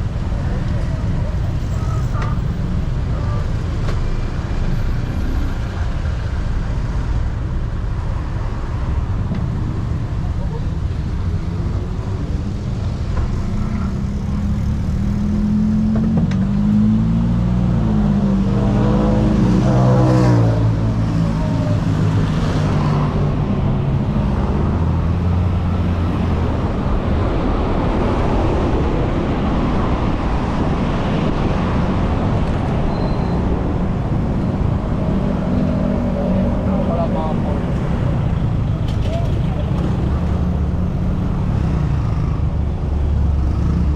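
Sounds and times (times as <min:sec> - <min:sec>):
car and motorbike engines: 0:00.0 - 0:43.9.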